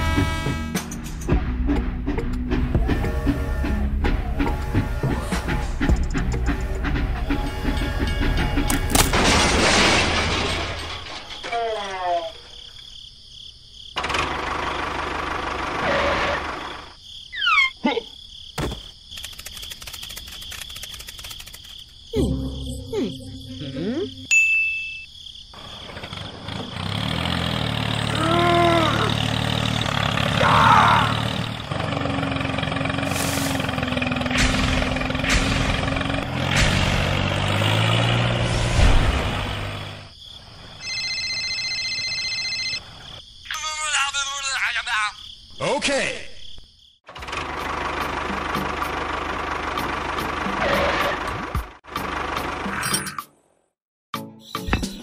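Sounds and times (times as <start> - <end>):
rumbling vehicle noise: 0.0 - 11.6, 14.0 - 17.0, 18.6 - 24.3, 25.5 - 41.0, 47.1 - 53.0
crashes: 9.0 - 11.6
rapid even clicking: 19.0 - 22.0
mobile phone ringing: 40.8 - 42.9.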